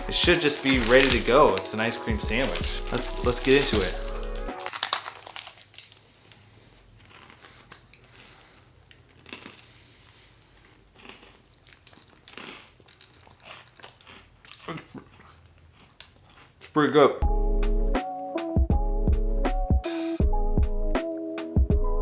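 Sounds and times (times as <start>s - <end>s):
wrapper crinkling: 0.1s - 8.2s, 11.0s - 14.8s
biting and chewing: 0.4s - 16.8s.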